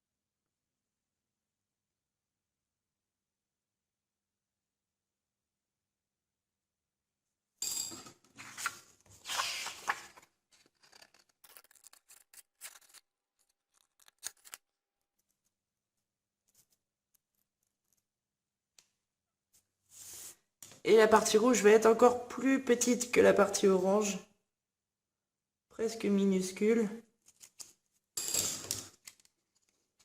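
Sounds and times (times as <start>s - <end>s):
paper rustling: 8.3s - 15.6s, 27.2s - 27.8s
scissors cutting card: 10.8s - 14.6s.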